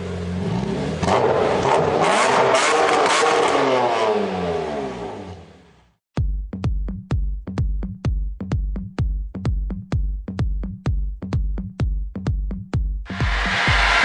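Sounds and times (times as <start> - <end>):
diesel engine revving hard: 0.0 - 5.6
electronic music with steady beat: 6.2 - 14.0.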